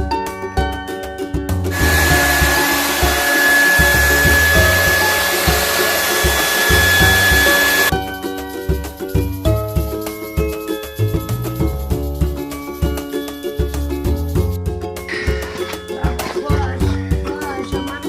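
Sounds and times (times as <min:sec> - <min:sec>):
electric motor air rush: 0:01.7 - 0:07.9
high whine: 0:01.7 - 0:07.9
upbeat latin music: 0:06.4 - 0:18.0.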